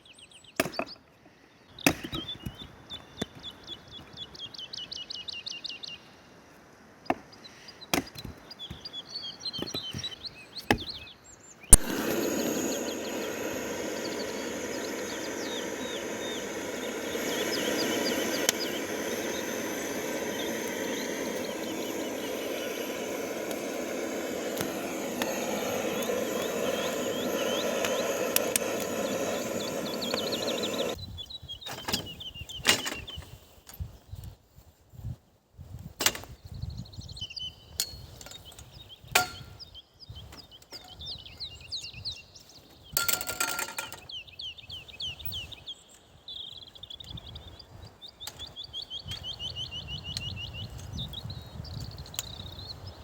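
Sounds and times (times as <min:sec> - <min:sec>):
birds singing: 0:00.0 - 0:06.2, 0:07.0 - 0:33.3, 0:36.5 - 0:53.0
rushing outdoor noise: 0:11.7 - 0:31.0.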